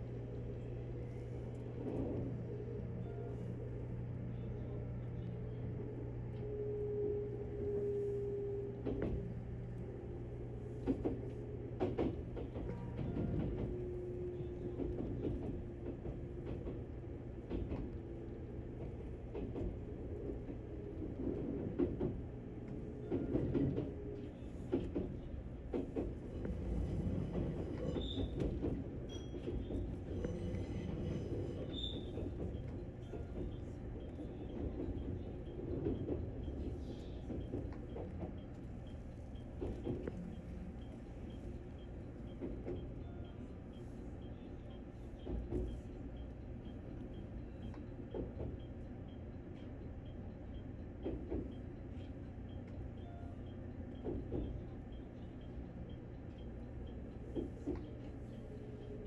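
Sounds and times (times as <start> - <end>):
train interior hum: 0.0 - 59.0
clunks and clicks: 10.8 - 13.8.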